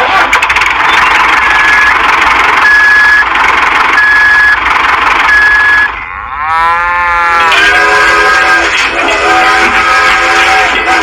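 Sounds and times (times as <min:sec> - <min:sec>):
reversing beeper: 0:00.8 - 0:06.1.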